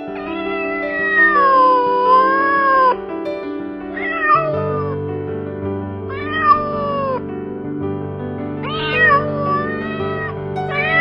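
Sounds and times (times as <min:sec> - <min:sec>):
background music: 0:00.0 - 0:11.0
cat meowing: 0:00.1 - 0:03.0, 0:03.9 - 0:05.0, 0:06.1 - 0:07.2, 0:08.6 - 0:11.0.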